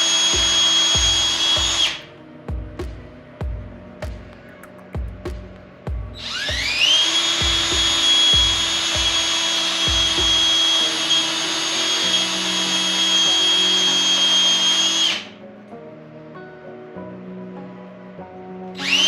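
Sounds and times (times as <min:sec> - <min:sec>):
background music with a beat: 0:00.0 - 0:14.5
power tool motor whine: 0:06.3 - 0:15.3.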